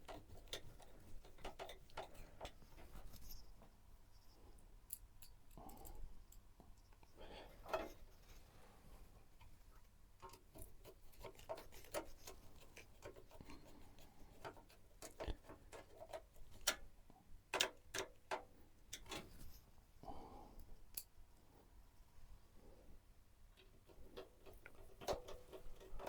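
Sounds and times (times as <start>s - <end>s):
computer parts clicking and tapping: 17.5s - 19.2s.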